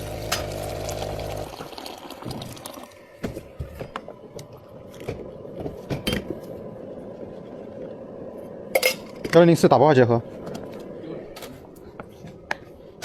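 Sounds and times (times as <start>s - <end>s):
cups and utensils clinking: 5.8s - 6.4s, 8.7s - 9.4s.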